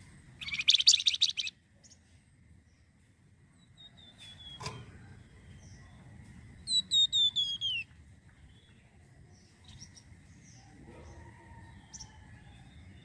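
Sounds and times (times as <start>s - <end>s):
songbird whistled notes: 0.4s - 1.5s, 6.6s - 7.9s
faint bird chirps: 0.4s - 2.9s, 3.5s - 13.0s.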